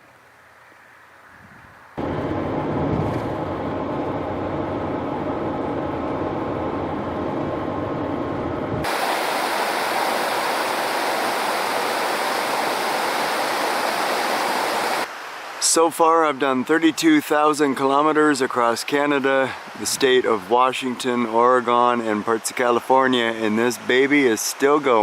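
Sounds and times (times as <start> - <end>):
van engine and road noise: 0.0 - 9.0
bright rushing hiss: 8.8 - 15.1.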